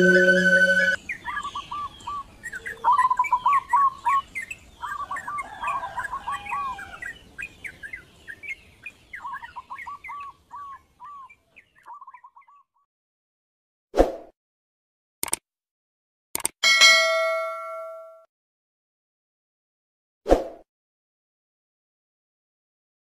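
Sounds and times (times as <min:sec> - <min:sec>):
birds chirping and singing: 0:00.0 - 0:12.7.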